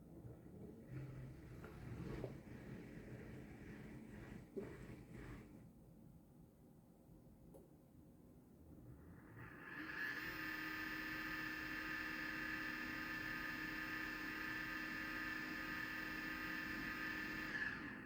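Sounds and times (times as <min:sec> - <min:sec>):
dishwasher pump motor whining: 0:09.1 - 0:18.0.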